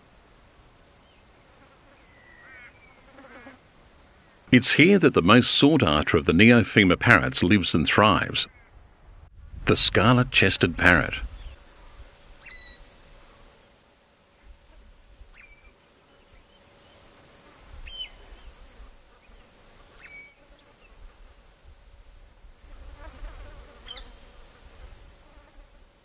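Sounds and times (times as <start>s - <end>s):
insect hum: 0.0s - 4.6s, 10.8s - 26.0s
low wind rumble: 8.2s - 12.9s.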